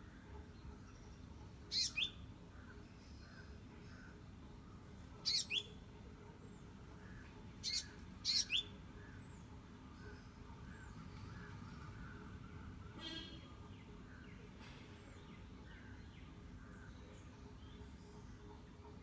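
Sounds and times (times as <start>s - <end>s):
small bird chirping: 1.7s - 2.2s, 5.2s - 5.8s, 7.6s - 8.7s.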